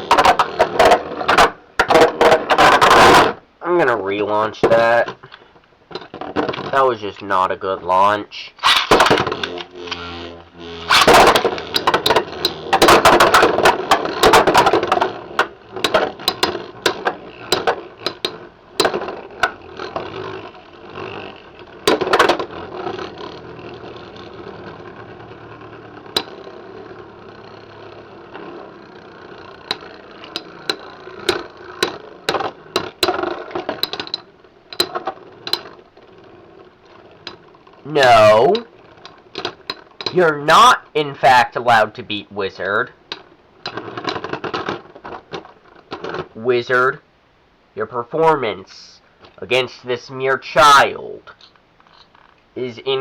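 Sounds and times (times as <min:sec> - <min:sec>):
spinning top whir: 0:00.0 - 0:03.3, 0:08.6 - 0:40.2
spinning tops clashing: 0:10.8 - 0:37.5.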